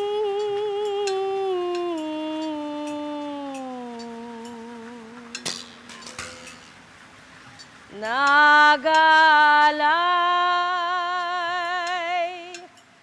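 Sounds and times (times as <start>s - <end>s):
person singing held notes: 0.0s - 6.4s
small clinks: 0.4s - 7.8s.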